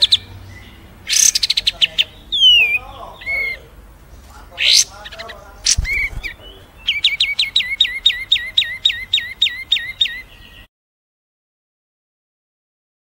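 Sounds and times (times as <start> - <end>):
songbird whistling: 0.0 - 3.7, 4.6 - 10.7
bird calls: 0.0 - 10.7.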